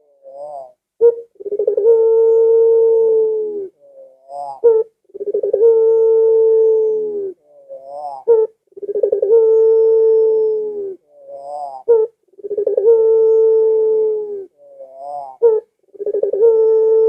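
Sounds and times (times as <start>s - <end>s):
dove cooing: 0.0s - 17.0s.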